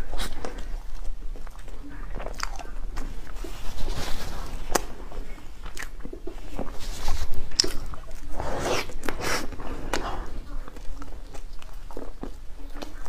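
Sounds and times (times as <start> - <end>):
chewing soft bread: 0.0 - 13.0
mouth clicks and smacks: 5.6 - 10.0.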